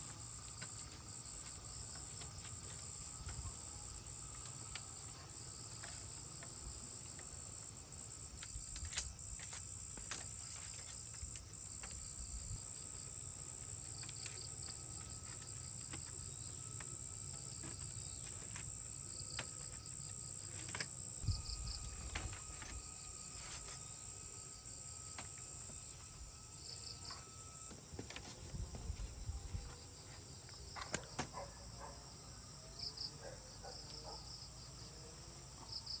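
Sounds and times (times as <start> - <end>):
insect chirps: 0.0 - 36.0.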